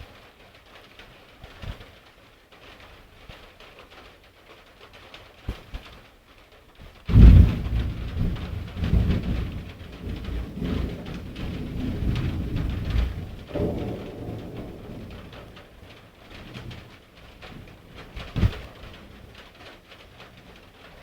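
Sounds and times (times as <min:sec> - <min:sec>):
light rain falling: 0:00.0 - 0:21.0
loud thunderclap rumbling: 0:07.1 - 0:19.5.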